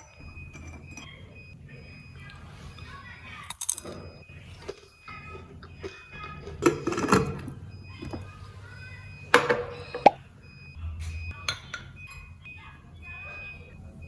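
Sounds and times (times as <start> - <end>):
dishes and utensils clinking: 0.0 - 1.2, 5.6 - 8.2.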